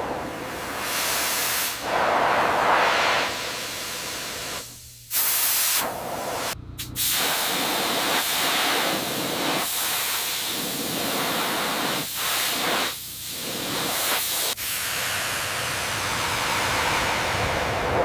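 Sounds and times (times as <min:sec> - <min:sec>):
hissing spray from a nozzle: 0:00.0 - 0:17.4.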